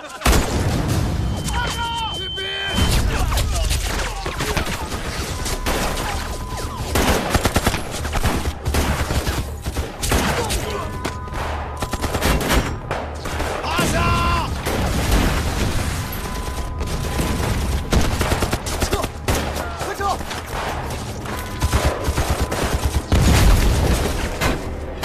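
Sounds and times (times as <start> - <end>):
rapid gunfire: 3.8 - 10.6, 11.3 - 13.7, 14.6 - 24.6
person shouting: 13.7 - 14.5.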